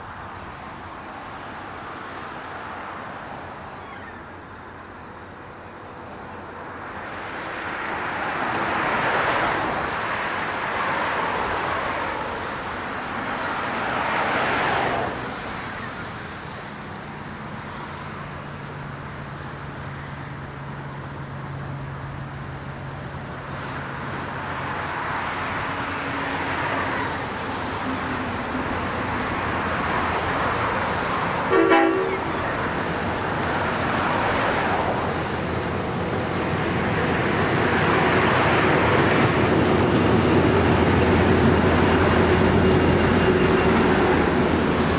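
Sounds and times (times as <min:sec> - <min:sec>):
diesel locomotive drone: 0:00.0 - 0:44.9
traffic noise: 0:00.0 - 0:44.9
short horn toot: 0:31.5 - 0:32.3.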